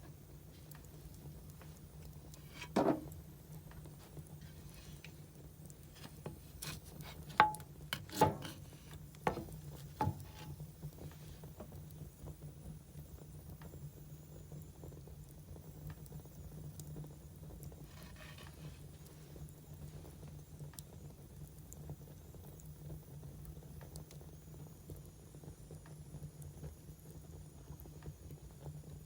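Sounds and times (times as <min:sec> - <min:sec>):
firewood crackling and popping: 0:00.1 - 0:12.3.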